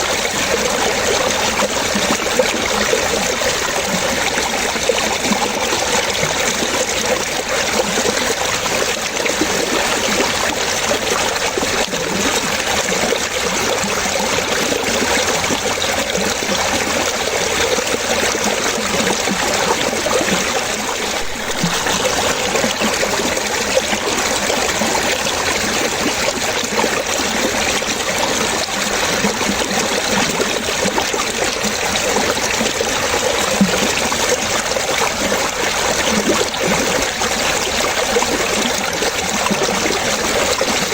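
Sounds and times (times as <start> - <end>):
water splashing and trickling: 0.0 - 40.9.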